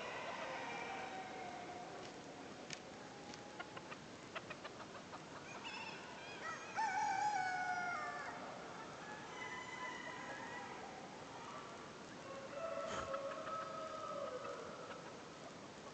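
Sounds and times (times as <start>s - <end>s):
rooster crowing: 6.4s - 8.4s, 9.2s - 10.8s, 12.2s - 14.8s.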